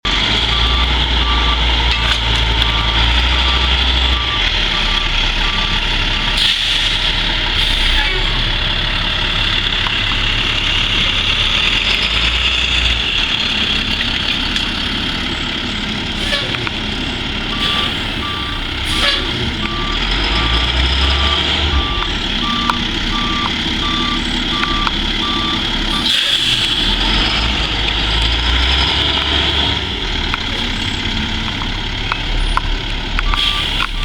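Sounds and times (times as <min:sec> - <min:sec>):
diesel truck engine running: 0:00.0 - 0:34.0
reversing alarm beeps: 0:00.4 - 0:06.0, 0:16.6 - 0:27.6, 0:33.2 - 0:34.0.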